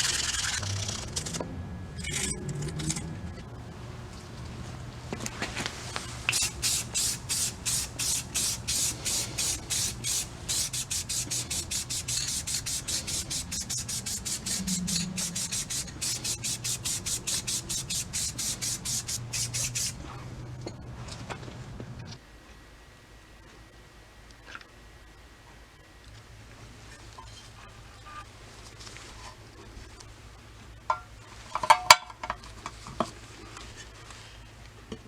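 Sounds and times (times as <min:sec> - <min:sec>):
low steady hum: 0:00.0 - 0:35.0
hand rubbing strokes: 0:05.4 - 0:20.0.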